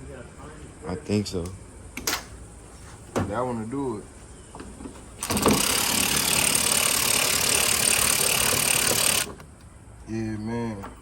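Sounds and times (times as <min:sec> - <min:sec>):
handheld power tool running: 0:05.2 - 0:09.4.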